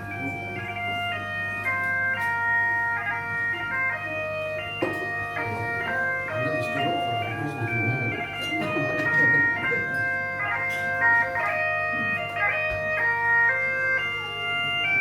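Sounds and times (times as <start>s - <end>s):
bagpipes playing a tune: 0.0s - 15.0s.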